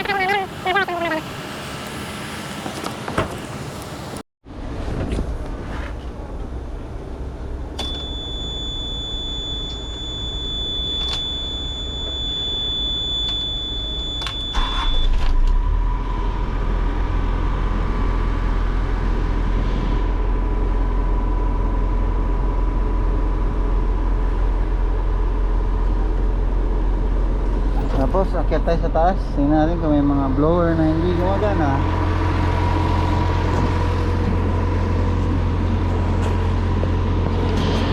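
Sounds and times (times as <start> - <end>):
bus engine rumbling: 0.0 - 37.9
high steady beep: 7.8 - 15.1.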